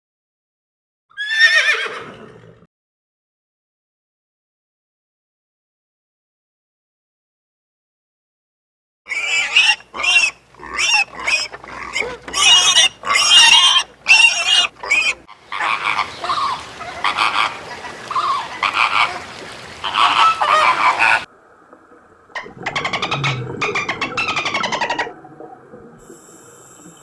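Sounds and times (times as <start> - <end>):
steady hiss: 26.0 - 27.0.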